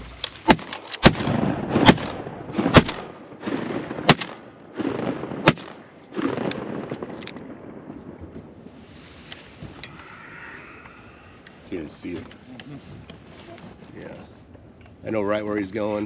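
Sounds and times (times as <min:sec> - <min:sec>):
shotgun shots: 0:00.5 - 0:07.5.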